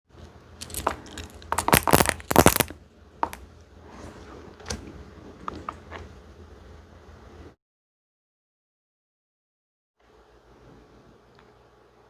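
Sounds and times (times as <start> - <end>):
crunchy dessert being chewed: 0.6 - 3.4.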